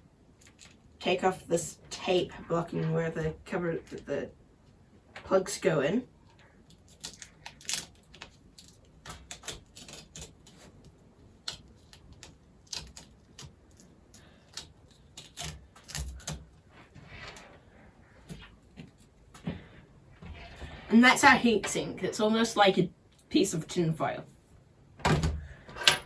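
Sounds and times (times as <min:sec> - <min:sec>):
tape peeling crackling clicks: 0:06.6 - 0:16.4.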